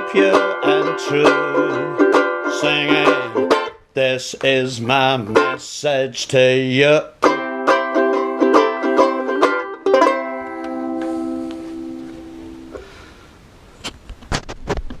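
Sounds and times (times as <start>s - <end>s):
ukuleles strumming: 0.0s - 3.8s, 4.4s - 5.6s, 6.8s - 12.9s.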